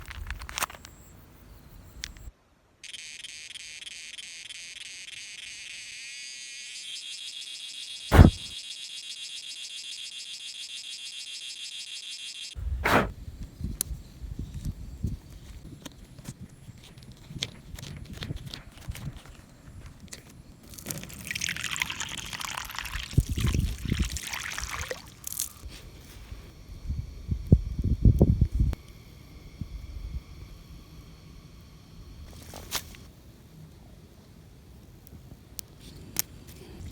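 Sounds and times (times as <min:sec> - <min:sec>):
insects buzzing: 0:00.0 - 0:16.7, 0:19.2 - 0:33.5
loud thump with falling pitch: 0:08.1 - 0:08.5
water pouring: 0:20.7 - 0:25.6.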